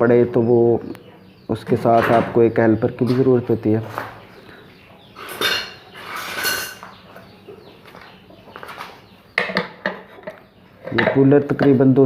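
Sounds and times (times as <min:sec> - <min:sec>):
metal clinking and scraping: 0:05.2 - 0:07.0.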